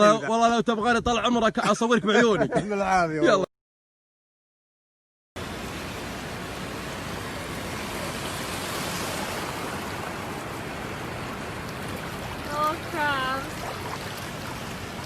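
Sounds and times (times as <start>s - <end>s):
water rushing: 5.4s - 15.0s.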